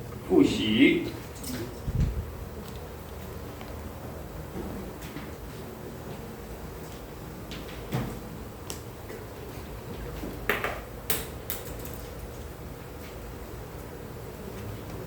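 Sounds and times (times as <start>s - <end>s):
classroom room hum: 0.0s - 5.3s.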